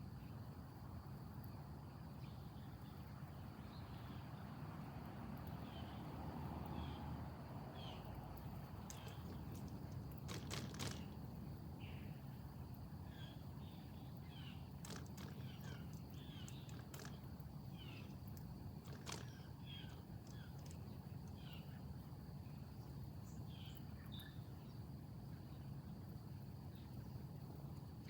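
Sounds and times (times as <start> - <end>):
steady low hum: 5.1 - 28.0
sharp clicks: 8.4 - 11.3, 14.8 - 21.4
bird chirps: 13.1 - 18.2, 18.8 - 21.8.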